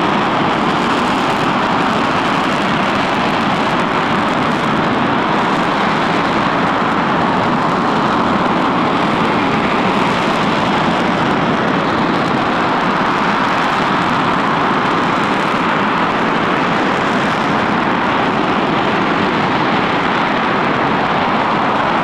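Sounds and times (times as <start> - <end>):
rocket engine roaring: 0.0 - 22.0.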